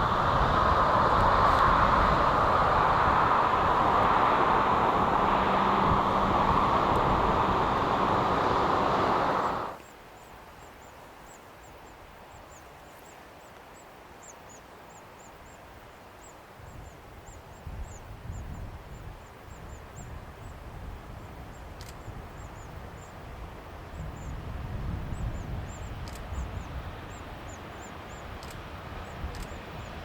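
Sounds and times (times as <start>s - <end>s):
freight train rumbling on rails: 0.0s - 9.8s.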